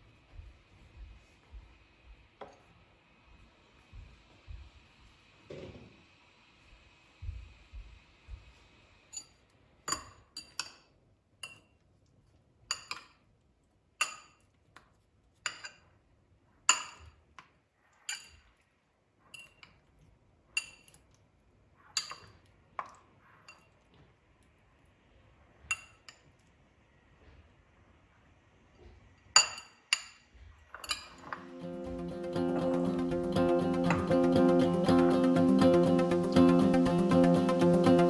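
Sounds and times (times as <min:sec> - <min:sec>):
dishes and cutlery clinking: 0:15.5 - 0:15.9, 0:19.3 - 0:19.9, 0:20.6 - 0:21.0, 0:30.8 - 0:33.0.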